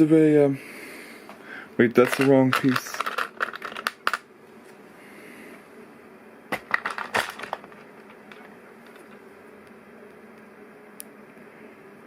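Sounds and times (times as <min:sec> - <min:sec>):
plastic pieces clicking and clattering: 0:02.0 - 0:04.2, 0:06.5 - 0:09.2.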